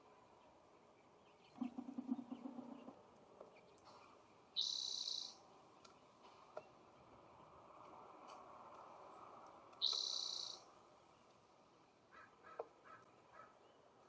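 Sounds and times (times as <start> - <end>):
bird harsh high call: 4.6 - 5.4, 9.8 - 10.6.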